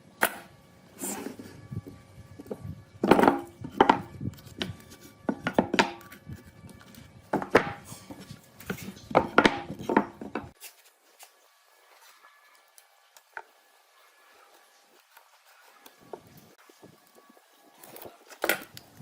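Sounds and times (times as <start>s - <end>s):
hard objects knocking on workbench: 3.0s - 4.1s, 7.3s - 7.8s, 9.1s - 10.5s.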